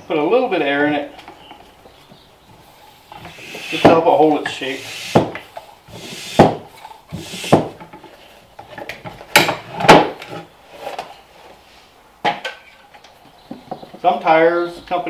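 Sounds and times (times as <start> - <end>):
knocks and rubbing on tire: 6.3 - 8.0.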